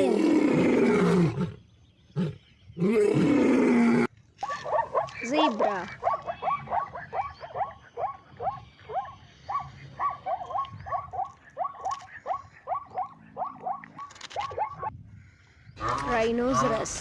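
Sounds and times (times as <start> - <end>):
zebra barking yelps: 4.4 - 14.9.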